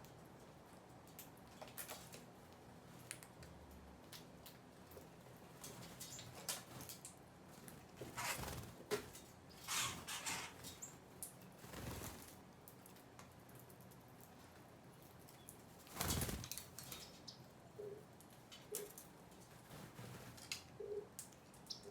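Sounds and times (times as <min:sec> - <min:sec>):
small birds fluttering: 0:05.6 - 0:14.4, 0:15.0 - 0:17.3, 0:18.7 - 0:20.8.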